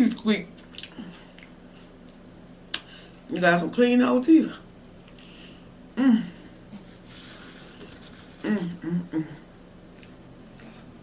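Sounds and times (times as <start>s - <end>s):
low steady hum: 0.0s - 11.0s
quiet eating: 0.5s - 3.3s, 7.8s - 11.0s.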